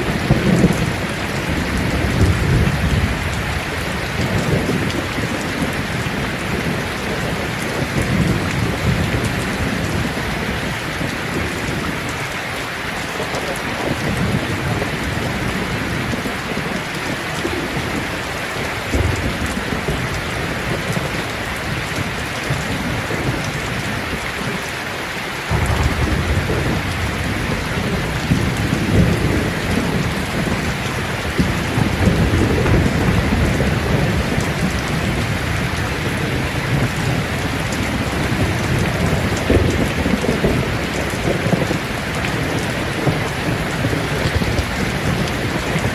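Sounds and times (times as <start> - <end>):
rain falling on leaves: 0.0 - 45.9
low shifting rumble: 25.5 - 29.0.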